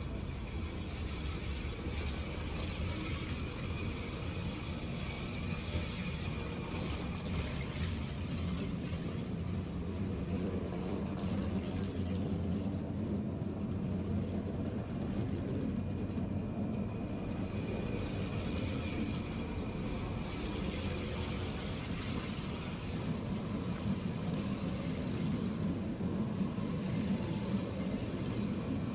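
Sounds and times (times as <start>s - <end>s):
electric train rumble and hum: 0.0s - 28.9s
faint high whine: 0.0s - 28.9s.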